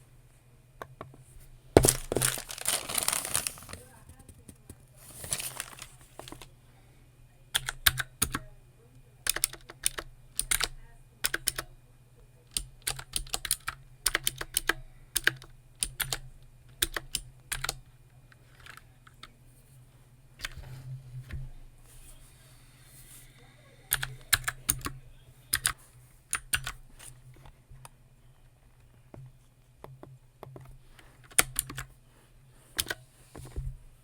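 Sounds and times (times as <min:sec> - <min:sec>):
typing on keyboard: 0:07.6 - 0:08.4, 0:09.2 - 0:11.7, 0:12.5 - 0:16.2, 0:16.8 - 0:17.8, 0:23.9 - 0:26.8, 0:31.3 - 0:31.9.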